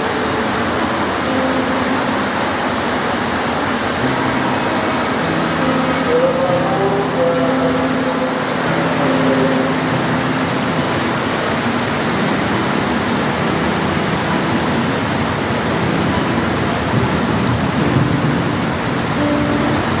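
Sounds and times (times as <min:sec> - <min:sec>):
heavy rainfall hiss: 0:00.0 - 0:20.0.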